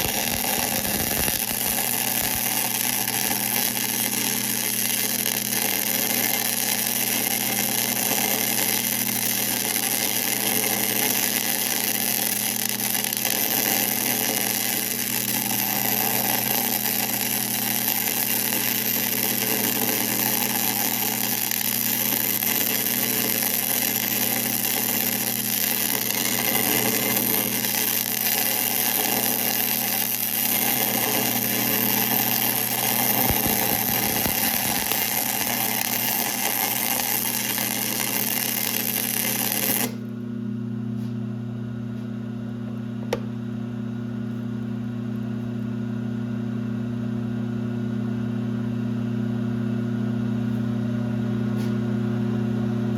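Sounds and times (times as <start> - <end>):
lathe running: 0.0 - 40.1.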